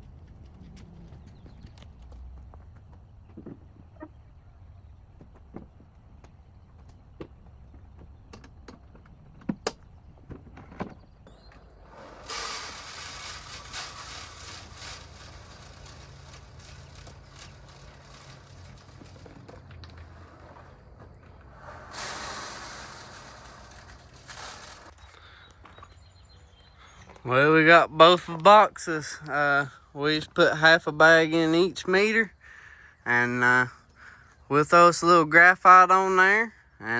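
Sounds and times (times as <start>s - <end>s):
corn kernels pouring rattling: 12.0s - 20.1s, 21.6s - 25.0s.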